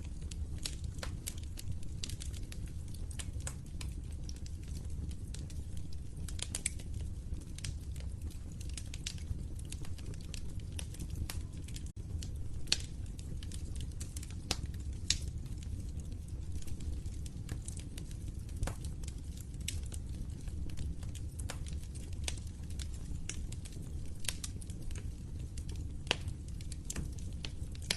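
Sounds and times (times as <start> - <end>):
log fire crackling: 0.0 - 27.9.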